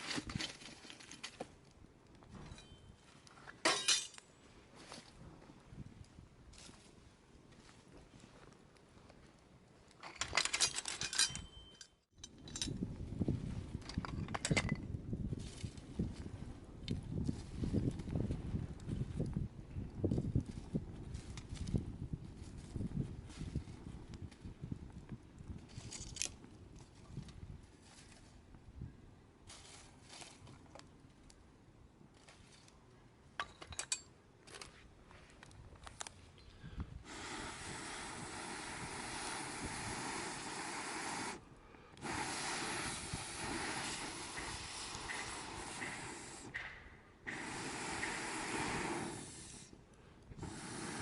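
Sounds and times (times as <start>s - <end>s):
light clicks and clinks: 9.9s - 12.8s.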